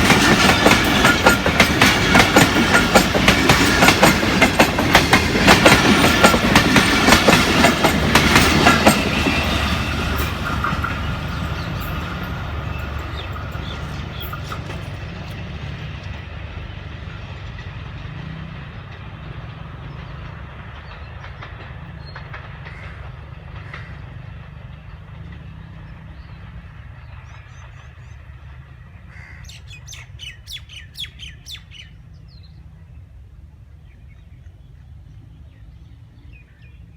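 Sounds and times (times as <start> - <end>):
train wheel clicks: 0.0 - 16.3, 20.0 - 25.5
train clattering over rail joints: 0.0 - 28.9.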